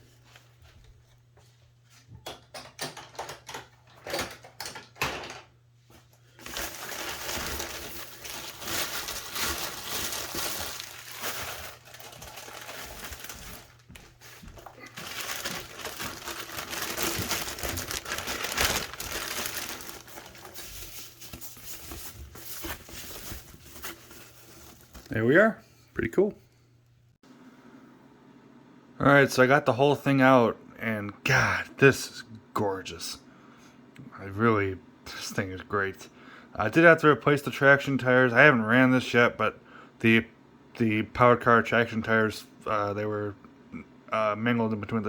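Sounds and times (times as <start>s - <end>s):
packaging crinkling and rustling: 6.2s - 25.2s.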